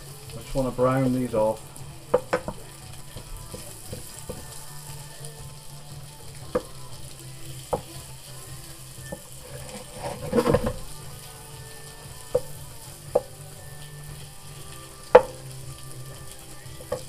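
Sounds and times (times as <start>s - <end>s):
meat sizzling in butter: 0.0s - 17.0s
wooden spoon knocking on pan: 2.1s - 4.6s, 6.4s - 6.8s, 7.6s - 8.0s, 9.0s - 10.9s, 11.9s - 13.4s, 15.0s - 15.4s.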